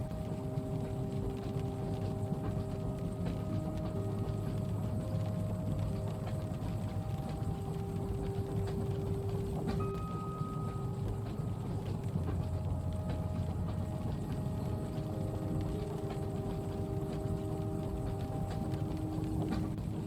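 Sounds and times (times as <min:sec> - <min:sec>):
rain noise: 0:00.0 - 0:20.0
train carriage clatter on rails: 0:00.0 - 0:20.0.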